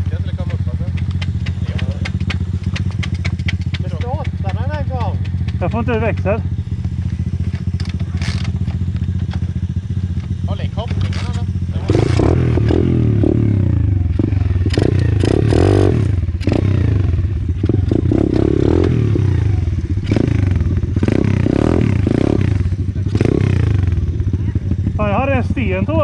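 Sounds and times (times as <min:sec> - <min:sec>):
motorbike engine revving: 0:00.0 - 0:26.0.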